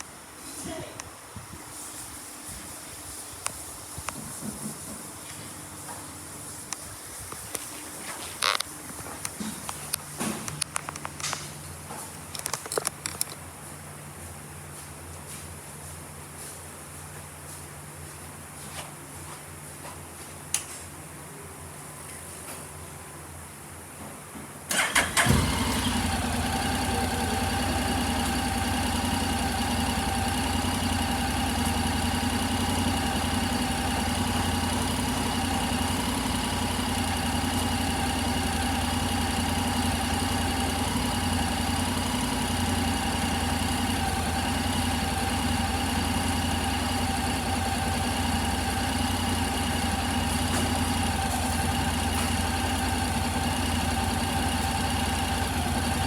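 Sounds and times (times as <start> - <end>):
motorcycle electric starter: 8.4 - 11.4, 24.7 - 56.0
motorcycle engine idling: 24.8 - 56.0.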